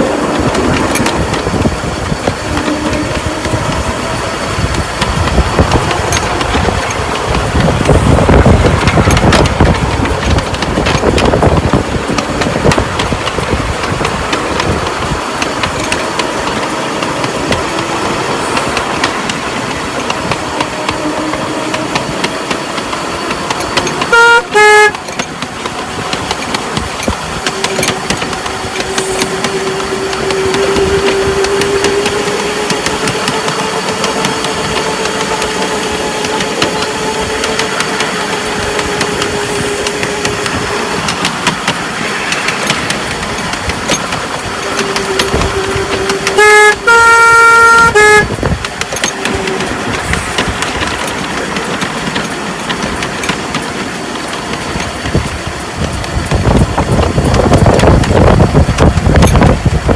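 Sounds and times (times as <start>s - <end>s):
miniature locomotive whine: 0.0s - 59.9s
locomotive horn toots: 0.1s - 11.8s, 17.3s - 26.2s, 27.4s - 41.3s, 44.2s - 50.9s.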